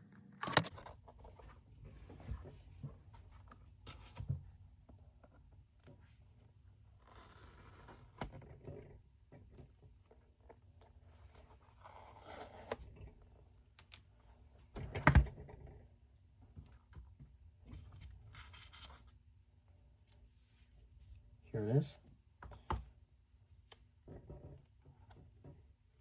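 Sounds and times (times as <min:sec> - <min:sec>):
cardboard packaging scraping and tearing: 0:11.6 - 0:12.8.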